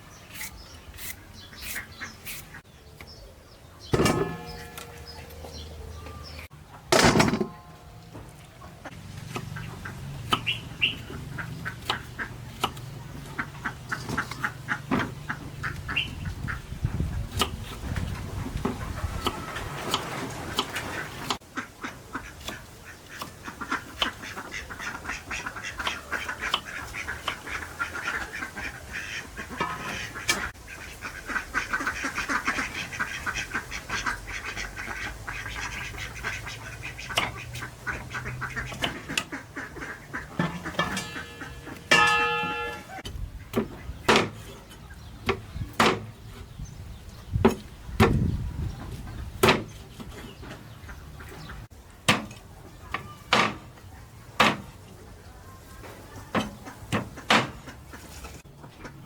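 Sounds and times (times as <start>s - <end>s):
ducks quacking and squawking: 8.6s - 17.4s, 18.7s - 45.1s, 55.7s - 59.0s.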